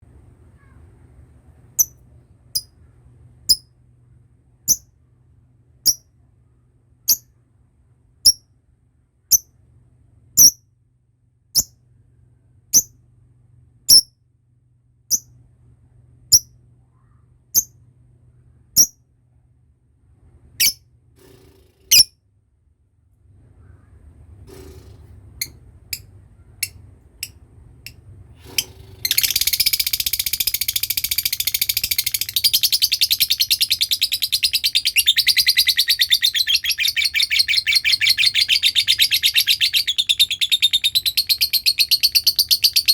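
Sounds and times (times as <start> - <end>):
lovebird chirping and trilling: 1.8 - 2.0, 10.4 - 10.6, 13.9 - 14.1, 18.8 - 19.0, 20.6 - 20.8, 21.9 - 22.1, 29.0 - 42.9.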